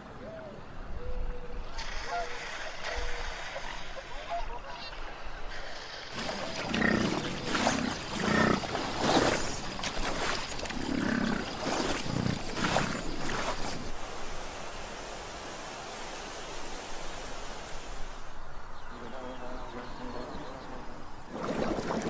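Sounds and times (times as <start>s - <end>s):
animals barking and growling: 6.2s - 13.9s.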